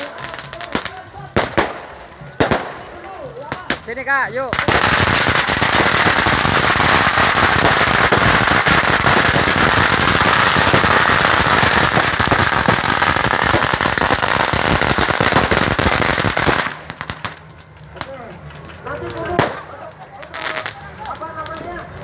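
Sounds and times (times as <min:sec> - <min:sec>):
fireworks crackling: 0:00.0 - 0:22.0.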